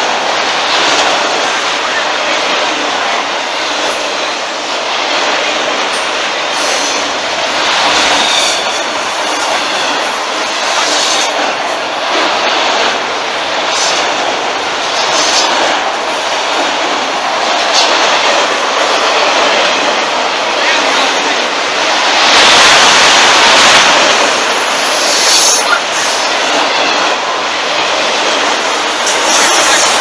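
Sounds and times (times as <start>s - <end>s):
steel wheels on rail: 0.0s - 30.0s
train wheels squealing: 7.9s - 11.4s.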